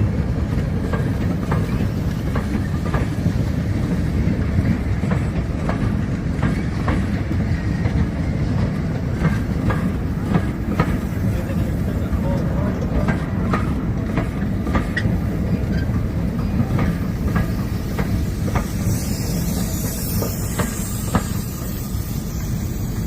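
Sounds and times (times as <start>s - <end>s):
train rumbling along track: 0.0s - 23.0s
wheels clicking over rail joints: 0.0s - 23.0s.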